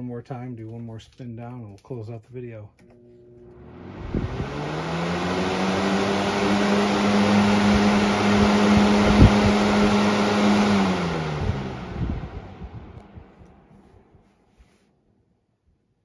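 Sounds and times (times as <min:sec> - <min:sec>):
box fan motor hum and air rush: 0:02.9 - 0:14.2.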